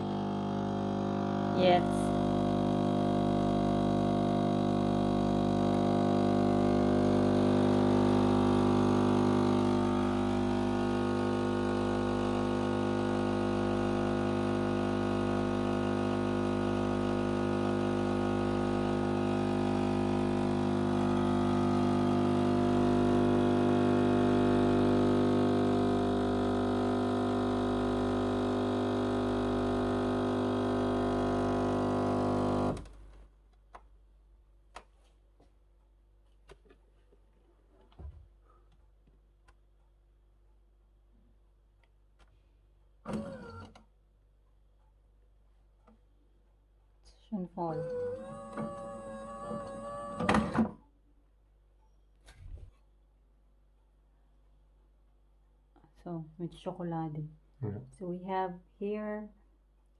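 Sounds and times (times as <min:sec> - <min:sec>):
coffee machine humming: 0:00.0 - 0:33.0, 0:43.0 - 0:43.7, 0:47.6 - 0:50.8.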